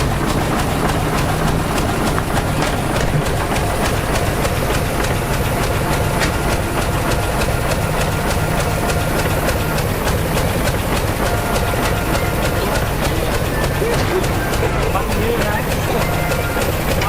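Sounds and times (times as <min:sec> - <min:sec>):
bulldozer diesel engine running: 0:00.0 - 0:17.0
steel tracks clanking: 0:00.0 - 0:17.0.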